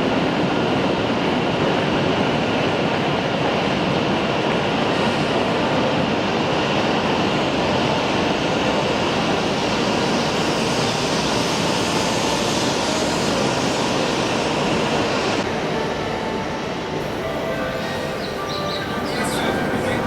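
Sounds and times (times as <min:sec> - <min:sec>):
high-speed train rushing: 0:00.0 - 0:20.0.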